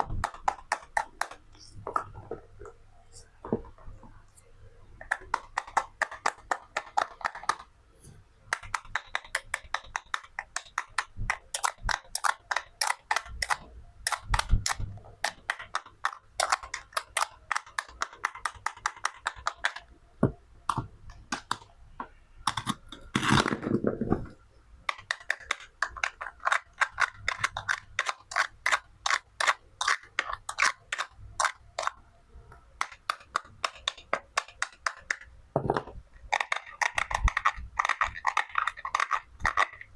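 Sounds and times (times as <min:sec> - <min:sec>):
toy knife clicking on board: 0:08.5 - 0:19.8, 0:24.9 - 0:32.0, 0:32.8 - 0:35.3, 0:36.3 - 0:39.9.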